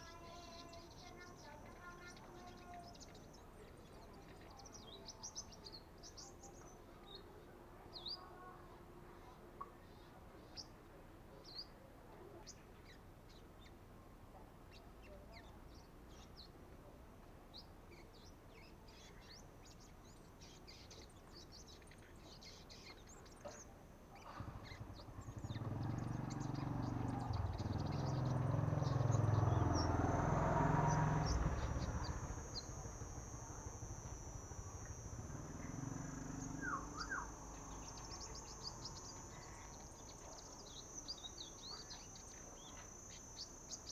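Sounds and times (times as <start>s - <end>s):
bird chirps and twitters: 0.0s - 6.7s, 19.0s - 43.9s
high-pitched buzz: 26.2s - 43.9s.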